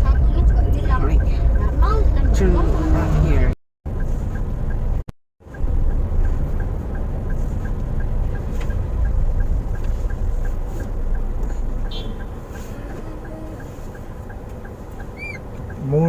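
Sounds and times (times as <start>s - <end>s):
car cabin rumble: 0.0s - 16.0s
turn signal clicking: 3.9s - 16.0s.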